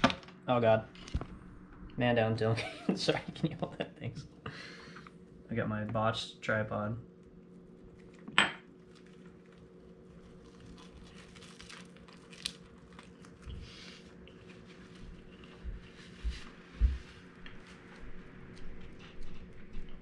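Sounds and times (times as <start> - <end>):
steady low hum: 0.0 - 20.0
person chewing crunchy food: 7.7 - 15.7.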